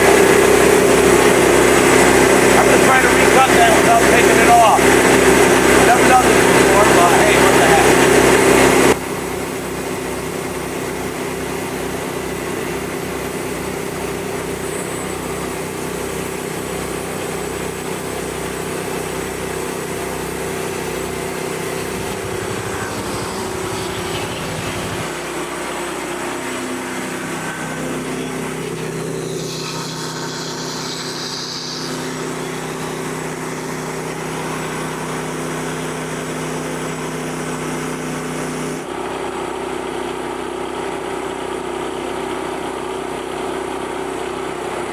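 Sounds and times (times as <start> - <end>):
small gasoline engine running: 0.0 - 44.9
low throbbing: 20.0 - 33.7.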